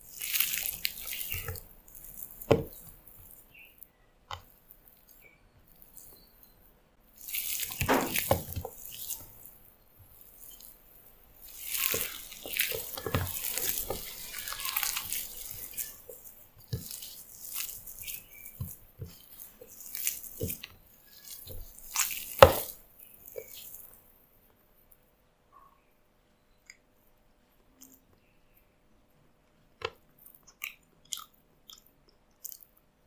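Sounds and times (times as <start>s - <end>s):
water running and splashing: 11.5s - 16.1s.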